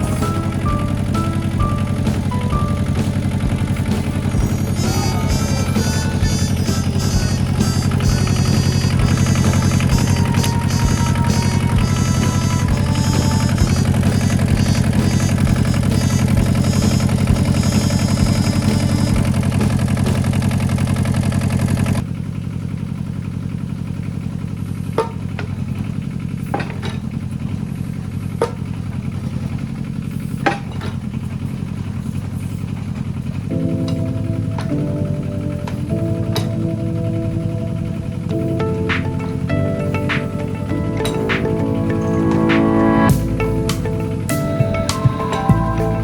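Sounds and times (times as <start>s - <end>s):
excavator diesel engine running: 0.0s - 46.0s.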